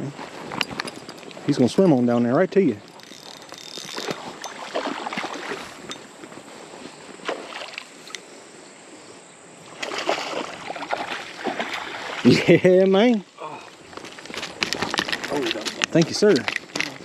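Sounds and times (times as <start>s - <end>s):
water splashing and sloshing: 2.6s - 8.2s, 9.6s - 17.0s.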